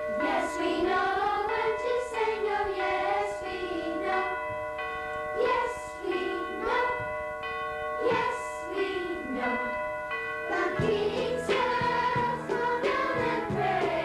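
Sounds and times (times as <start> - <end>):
youth choir singing: 0.2 - 4.4, 5.4 - 7.2, 8.0 - 9.7, 10.5 - 14.0
instrumental accompaniment: 10.5 - 14.0.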